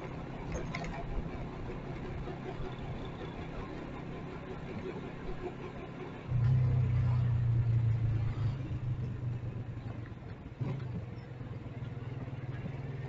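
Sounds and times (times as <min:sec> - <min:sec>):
vehicle engine low hum: 0:00.0 - 0:13.0.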